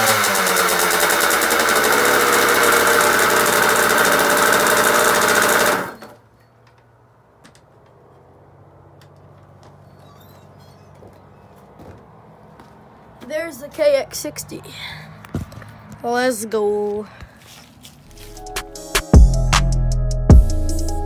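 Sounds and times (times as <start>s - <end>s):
two-stroke engine revving: 0.0s - 6.2s.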